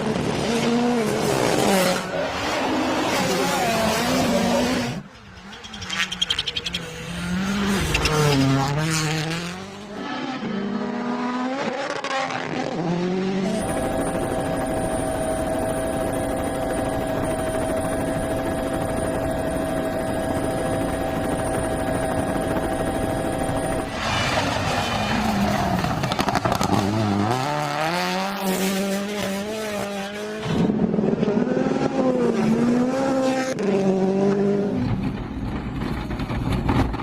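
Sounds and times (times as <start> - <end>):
car engine revving: 0.1 - 13.8
steady drone with held tones: 13.3 - 24.0.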